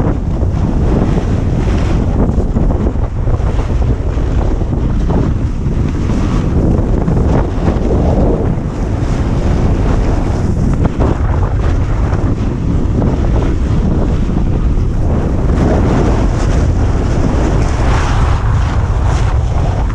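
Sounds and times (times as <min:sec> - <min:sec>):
wind buffeting microphone: 0:00.0 - 0:19.9
snowboard sliding on snow: 0:03.4 - 0:19.9.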